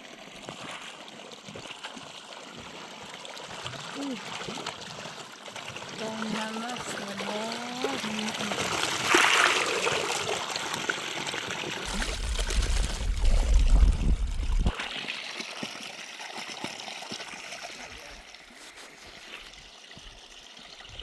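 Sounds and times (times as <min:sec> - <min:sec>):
water running and trickling: 0:00.0 - 0:21.0
low rumble: 0:11.9 - 0:14.8.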